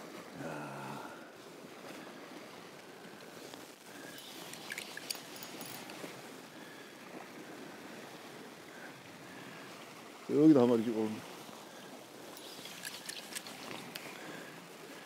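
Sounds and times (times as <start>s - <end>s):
sea washing on shore: 0.0s - 15.0s
small clicks and ticks: 3.5s - 6.0s, 12.3s - 14.2s.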